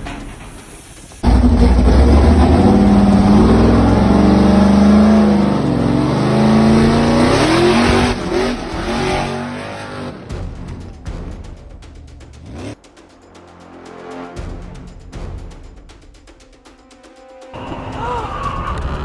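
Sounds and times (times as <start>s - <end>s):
car engine revving: 1.2s - 10.8s.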